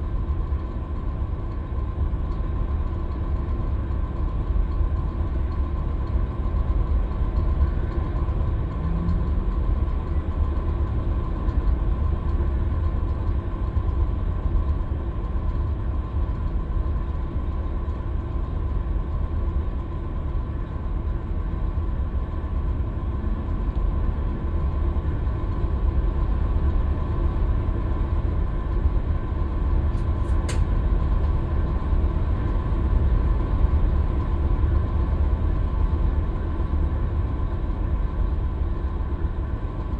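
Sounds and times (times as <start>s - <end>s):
bus diesel engine running: 0.0s - 39.9s
sharp click: 30.0s - 30.7s.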